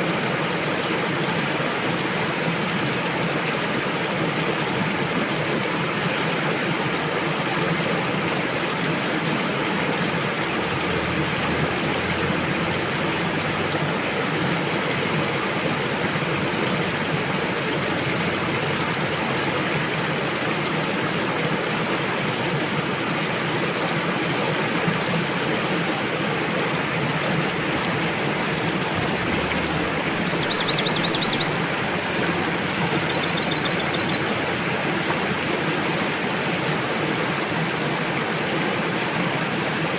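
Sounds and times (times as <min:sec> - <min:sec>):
river water flowing: 0:00.0 - 0:39.9
small bird trilling: 0:29.8 - 0:31.7, 0:32.8 - 0:34.3.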